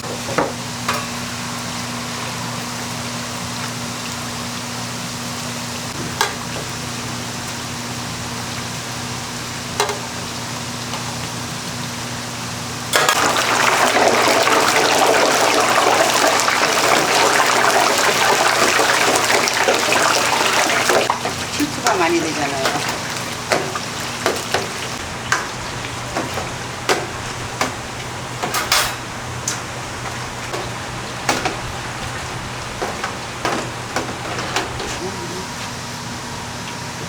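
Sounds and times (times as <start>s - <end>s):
dough sizzling in hot oil: 0.0s - 35.0s.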